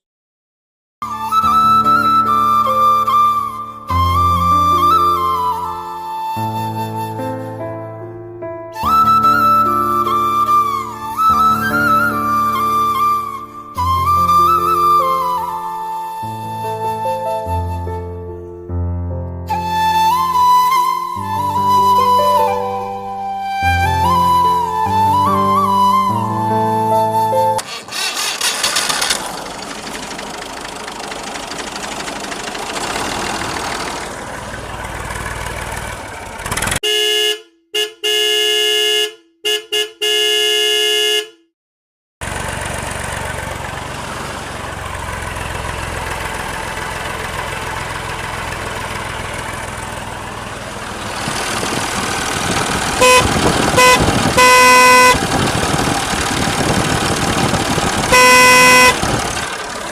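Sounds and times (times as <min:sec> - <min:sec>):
toy car motor whirring: 0:27.6 - 0:29.2
electronic horn toots: 0:36.8 - 0:41.5, 0:53.0 - 0:55.2, 0:58.1 - 0:59.0
short beeps: 0:58.1 - 0:59.0.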